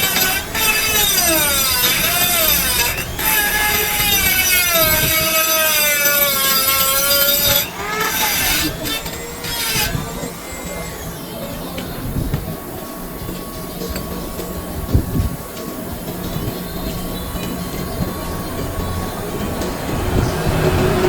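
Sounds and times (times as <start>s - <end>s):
shrill wavering metal squeal: 0.0s - 12.1s
quiet rasping: 0.0s - 12.5s.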